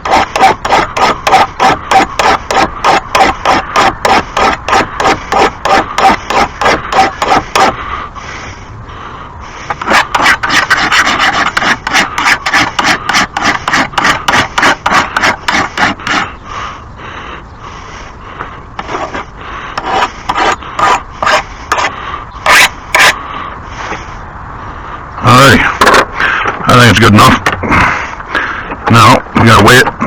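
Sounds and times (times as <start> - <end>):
hand file rasping on steel blade: 0.0 - 7.8, 9.7 - 16.3, 18.8 - 23.2.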